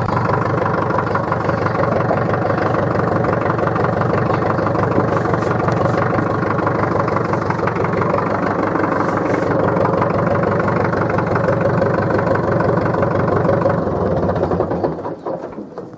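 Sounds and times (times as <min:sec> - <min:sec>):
tractor diesel engine running: 0:00.0 - 0:15.9.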